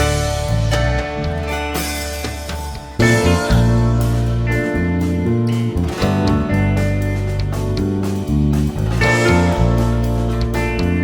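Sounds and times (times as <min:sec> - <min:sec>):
bass line: 0:00.0 - 0:11.0
plucked guitar: 0:00.0 - 0:11.0.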